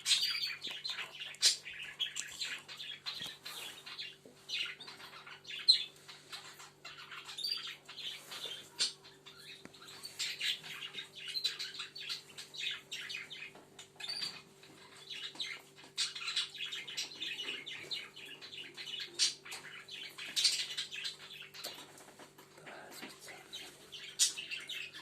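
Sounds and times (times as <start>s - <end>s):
budgerigars chattering: 0.0s - 21.8s.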